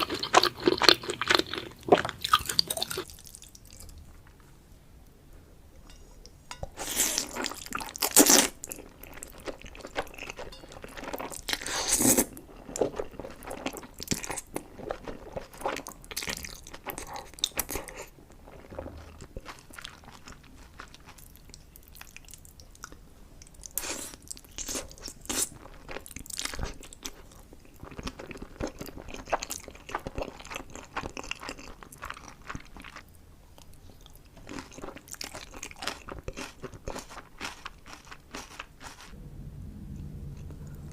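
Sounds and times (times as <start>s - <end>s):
crunchy chewing: 23.6s - 39.2s.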